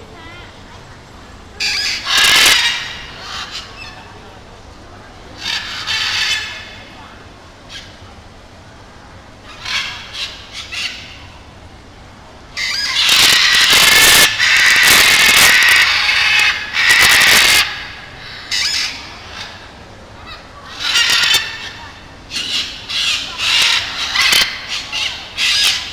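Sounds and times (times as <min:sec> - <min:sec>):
parrots screeching: 0:01.6 - 0:04.1, 0:05.4 - 0:06.8, 0:09.4 - 0:11.2, 0:12.6 - 0:19.6, 0:20.2 - 0:25.9.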